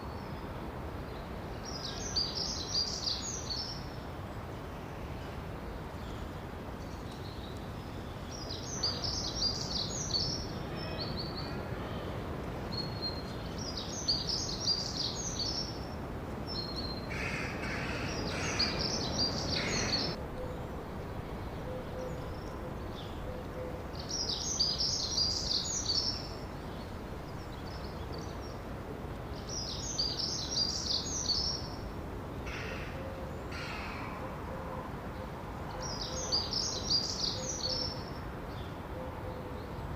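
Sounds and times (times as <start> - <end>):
songbird singing: 0.0 - 39.9
steady background noise: 0.0 - 39.9
lower-pitched bird calls: 16.6 - 20.6.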